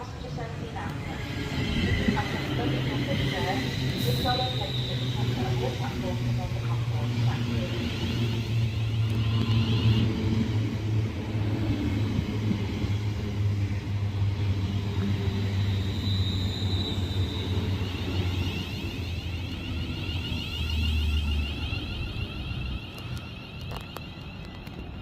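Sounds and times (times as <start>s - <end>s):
train low rumble: 0.0s - 25.0s
faint high whine: 15.3s - 25.0s.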